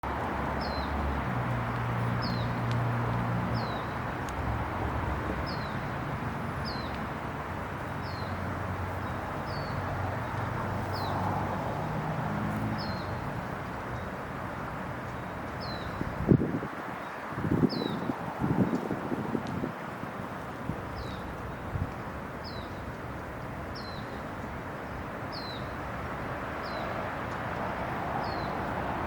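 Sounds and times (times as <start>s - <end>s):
outdoor background noise: 0.0s - 29.0s.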